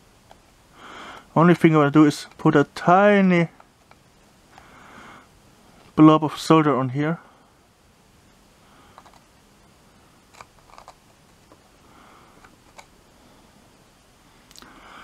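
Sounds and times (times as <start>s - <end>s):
soft breath: 0.7s - 1.3s, 4.5s - 5.9s, 8.6s - 9.2s, 11.7s - 15.0s.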